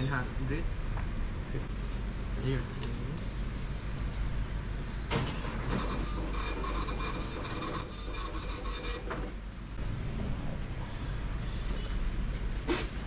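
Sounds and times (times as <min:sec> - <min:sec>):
steady low hum: 0:00.0 - 0:13.0
receipt printer buzzing: 0:05.2 - 0:09.3.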